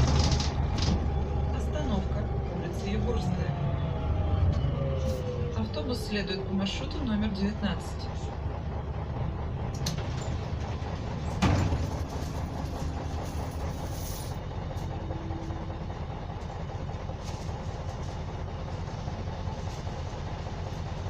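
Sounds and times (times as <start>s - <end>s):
diesel bus engine running: 0.0s - 21.0s.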